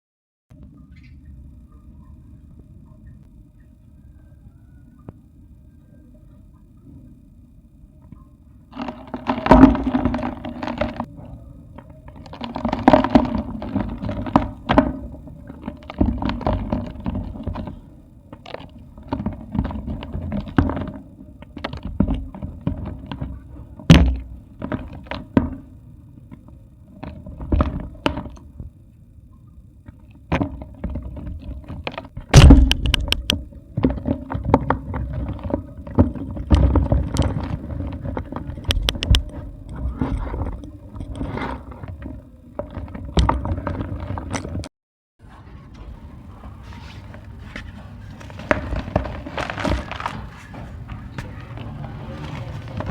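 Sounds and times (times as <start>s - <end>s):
clay pots crunching and cracking: 8.7s - 25.5s, 30.4s - 44.7s, 45.8s - 52.9s.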